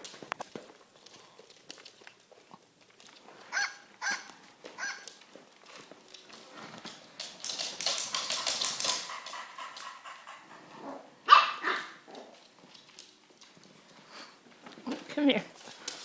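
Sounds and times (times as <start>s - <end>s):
puppy barking and yipping: 3.5s - 5.2s, 11.2s - 12.1s.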